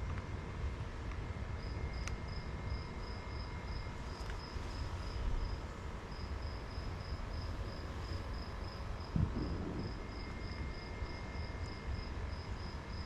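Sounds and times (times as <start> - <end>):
low outdoor rumble: 0.0 - 13.0
insect chirping: 6.2 - 13.0.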